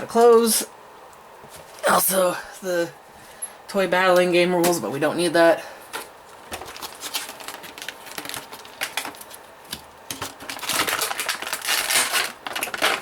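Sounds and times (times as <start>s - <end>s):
packaging crinkling and rustling: 5.9s - 13.0s.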